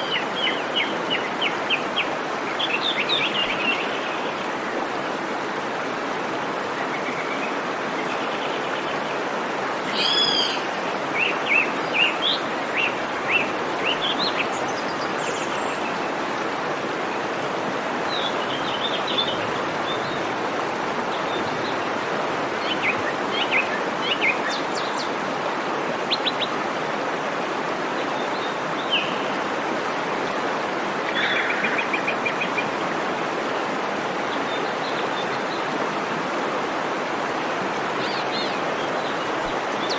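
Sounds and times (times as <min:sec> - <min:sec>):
waterfall rushing: 0:00.0 - 0:39.9
birds chirping: 0:09.9 - 0:15.9.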